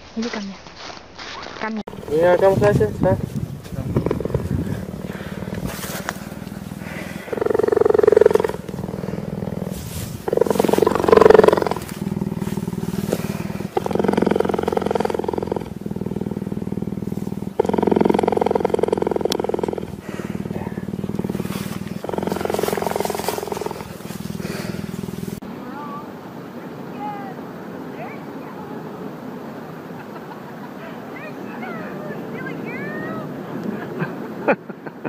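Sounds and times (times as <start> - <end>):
animal giving low pulsed calls: 3.9 - 25.4.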